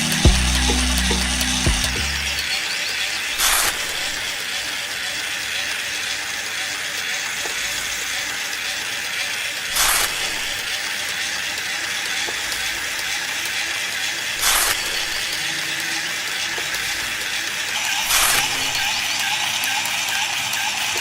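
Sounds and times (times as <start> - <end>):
geared mechanism whirring: 0.0 - 21.0
rasping bursts: 0.0 - 21.0.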